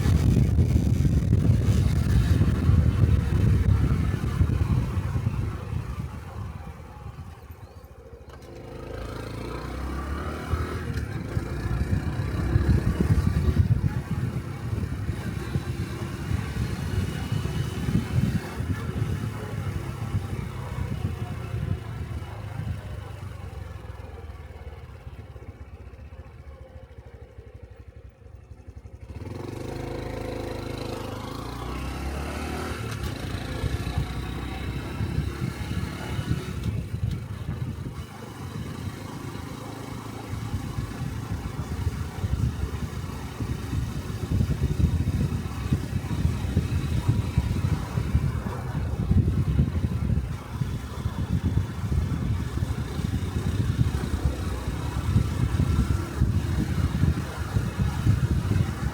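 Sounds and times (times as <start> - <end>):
motorcycle engine on the road: 0.0 - 58.9.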